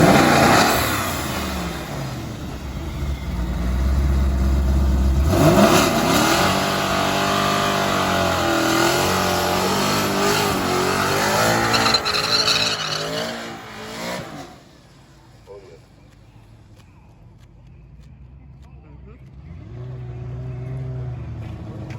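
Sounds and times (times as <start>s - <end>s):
sports car engine revving: 0.0s - 14.6s.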